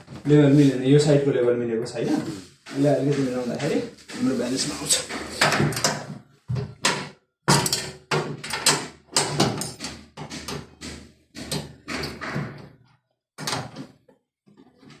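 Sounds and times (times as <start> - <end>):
washing machine knocking and rattling: 2.6 - 15.0.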